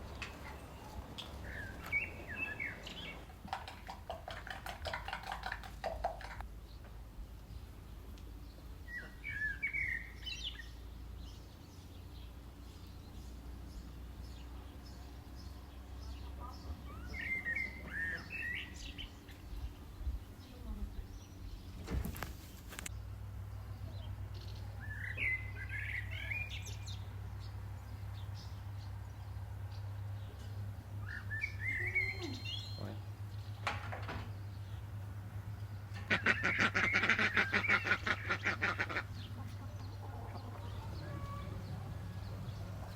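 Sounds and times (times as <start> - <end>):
songbird warbling: 0.0 - 6.4
songbird singing: 0.0 - 42.9
steady low rumble: 39.2 - 42.9.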